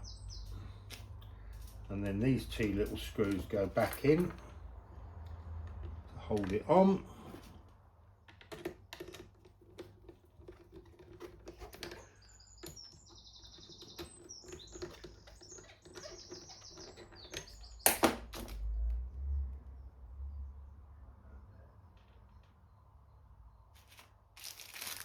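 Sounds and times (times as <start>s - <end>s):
bird chirping: 0.0s - 4.6s, 11.1s - 18.3s.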